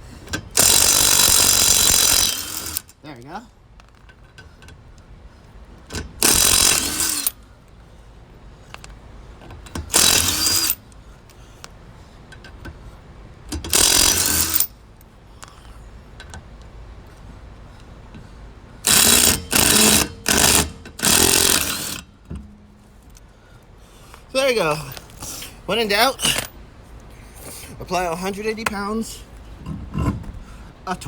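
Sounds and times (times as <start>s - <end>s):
impact wrench bursts: 0.3s - 2.9s, 6.0s - 7.4s, 9.7s - 10.8s, 13.5s - 14.7s, 18.8s - 22.6s, 26.2s - 26.5s.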